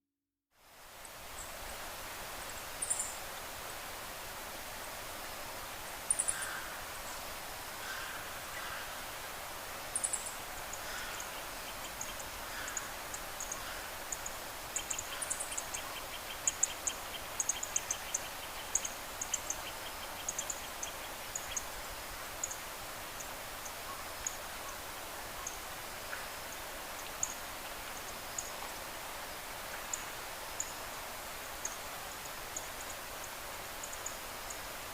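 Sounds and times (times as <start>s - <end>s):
outdoor hiss: 0.5s - 34.9s
small birds chirping: 9.9s - 21.8s.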